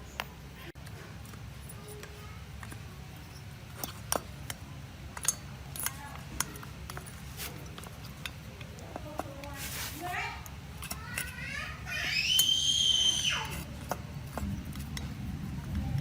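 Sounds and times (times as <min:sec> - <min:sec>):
metal tools clinking: 0:01.2 - 0:11.5.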